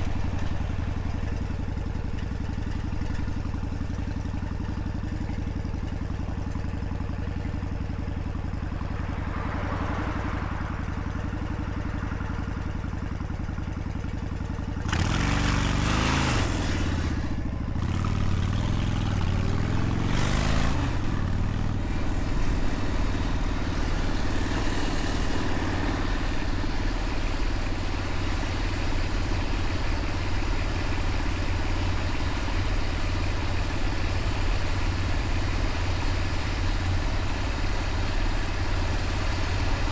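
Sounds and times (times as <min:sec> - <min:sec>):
motorcycle engine idling: 0:00.0 - 0:39.9
motorcycle revving and shifting: 0:14.7 - 0:39.9.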